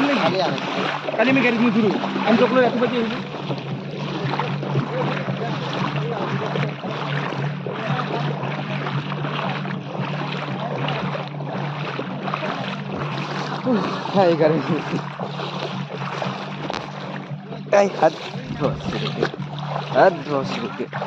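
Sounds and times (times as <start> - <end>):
vehicle engine humming: 15.8 - 20.1
steady rushing noise: 18.3 - 20.8.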